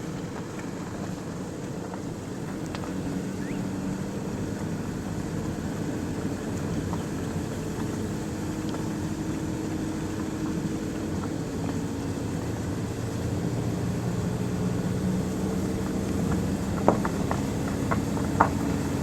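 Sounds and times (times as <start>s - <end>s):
engine drone: 0.0s - 19.0s.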